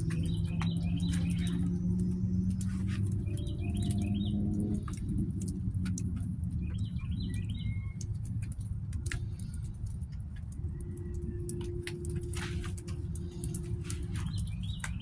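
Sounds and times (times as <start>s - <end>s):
small bird chirping: 0.0s - 5.1s, 6.6s - 8.7s, 13.4s - 15.0s
steady low rumble: 0.0s - 15.0s.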